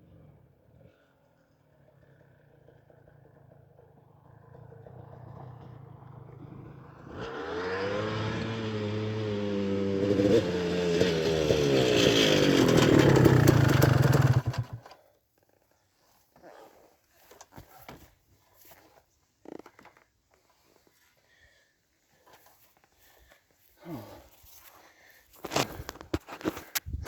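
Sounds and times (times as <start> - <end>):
off-road vehicle engine revving: 4.8 - 14.8.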